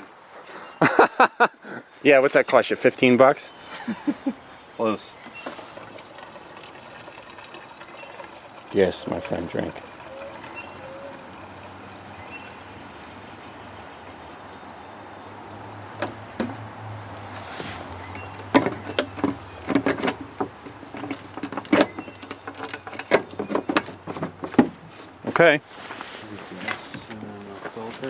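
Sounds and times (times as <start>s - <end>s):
fuel pouring into tank: 4.8s - 24.4s
irregular clicks and knocks: 15.6s - 16.7s, 18.1s - 25.4s.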